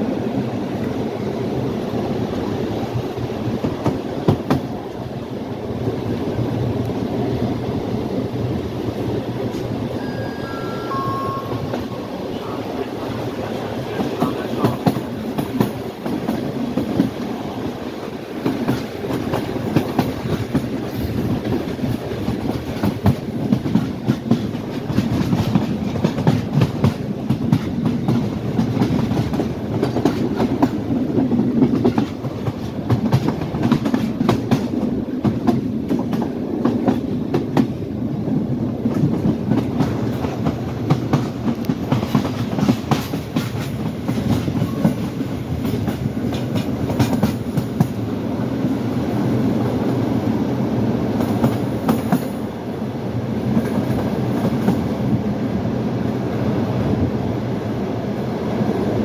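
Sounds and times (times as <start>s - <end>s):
steady train rumble: 0.0s - 59.0s
train wheels clattering over rail joints: 18.4s - 37.8s, 38.8s - 48.0s.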